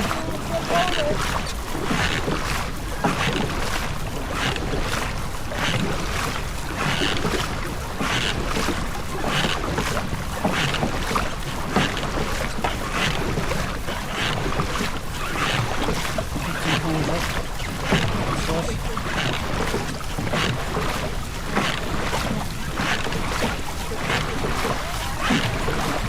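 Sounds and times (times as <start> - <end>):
wind on microphone: 0.0 - 8.0
oars splashing in water: 0.0 - 26.0
water wash: 0.0 - 26.0.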